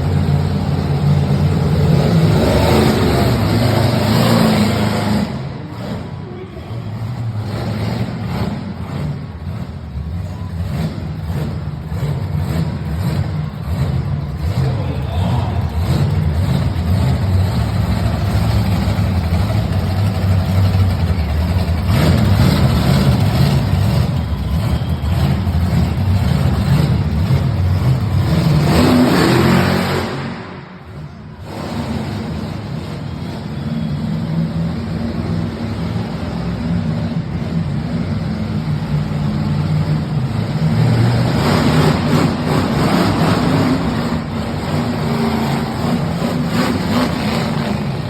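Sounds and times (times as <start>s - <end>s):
truck engine revving: 0.0s - 6.2s, 6.8s - 48.0s.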